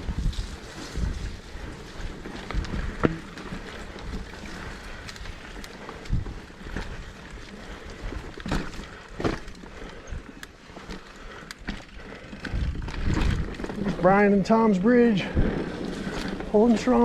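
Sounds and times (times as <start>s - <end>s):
bike tyre rumble: 0.0s - 17.0s
wind buffeting microphone: 0.0s - 17.0s
bike knocking over bumps: 2.0s - 5.3s, 8.2s - 9.9s.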